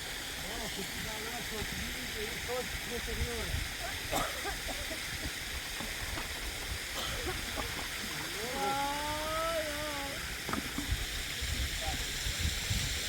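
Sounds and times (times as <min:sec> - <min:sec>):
running water: 0:00.0 - 0:13.0.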